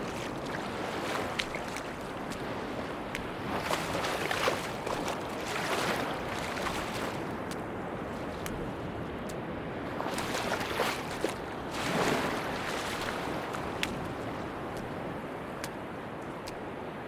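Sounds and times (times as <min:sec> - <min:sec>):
sea waves washing onto beach: 0:00.0 - 0:17.0.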